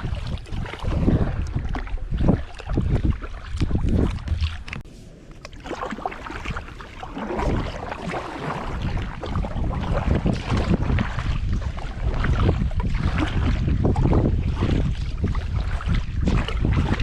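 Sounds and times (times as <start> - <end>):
paddle strokes splashing water: 0.0 - 17.0
wind rumble on microphone: 0.0 - 17.0.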